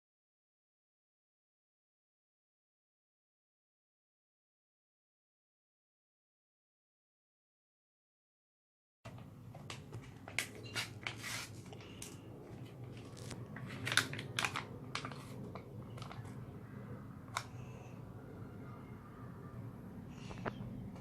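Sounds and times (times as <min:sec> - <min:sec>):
low steady hum: 0:09.1 - 0:21.0
plastic pouch crinkling and tearing: 0:12.9 - 0:16.4.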